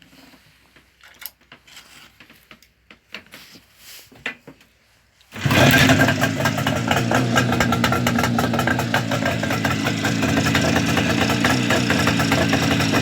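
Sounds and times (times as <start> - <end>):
motorcycle engine running: 5.4 - 13.0.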